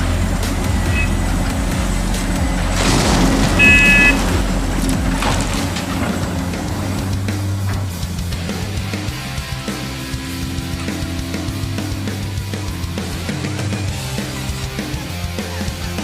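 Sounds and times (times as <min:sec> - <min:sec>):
truck engine running: 0:00.0 - 0:16.0
short high-pitched horn toot: 0:00.8 - 0:01.2, 0:03.6 - 0:04.2.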